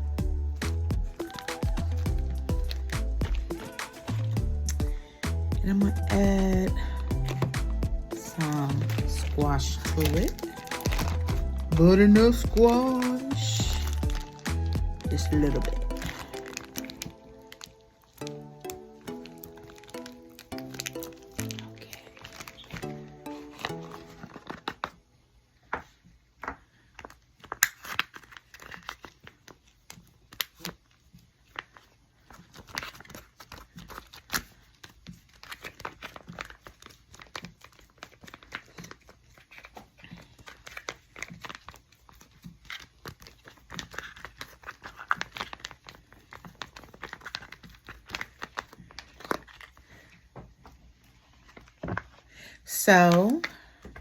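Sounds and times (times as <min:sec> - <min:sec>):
plastic crinkling and rustling: 0:01.2 - 0:05.2, 0:05.8 - 0:52.4.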